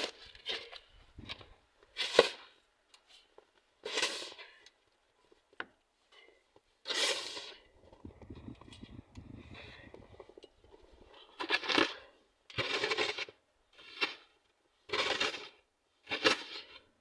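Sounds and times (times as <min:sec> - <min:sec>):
snow shovel scraping snow: 0:06.8 - 0:07.6.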